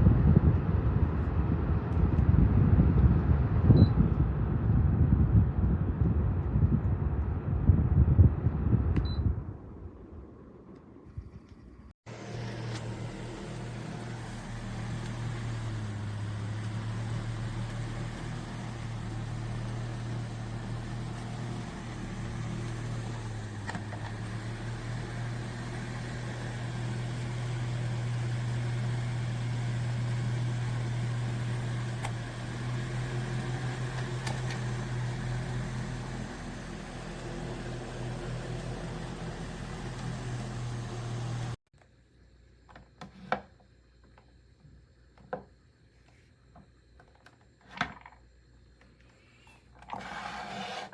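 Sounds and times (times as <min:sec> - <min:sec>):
table fan running: 0:12.1 - 0:41.6.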